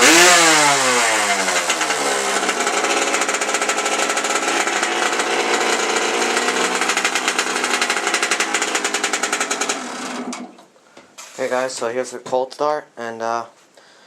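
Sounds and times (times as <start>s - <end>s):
two-stroke engine idling: 0.0s - 10.6s.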